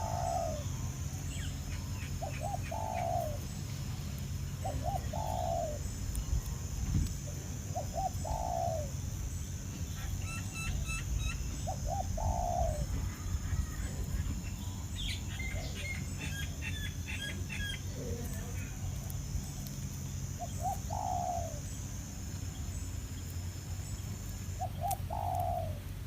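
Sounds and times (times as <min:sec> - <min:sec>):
bird cooing: 0:00.0 - 0:03.6, 0:04.6 - 0:05.9, 0:07.3 - 0:09.0, 0:09.9 - 0:19.6, 0:20.4 - 0:21.8, 0:24.6 - 0:25.9
steady high hiss: 0:00.0 - 0:26.0.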